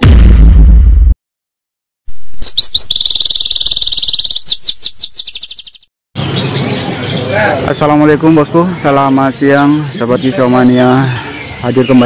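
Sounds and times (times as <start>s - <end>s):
songbird singing: 2.4s - 12.0s
outdoor background noise: 2.6s - 12.0s.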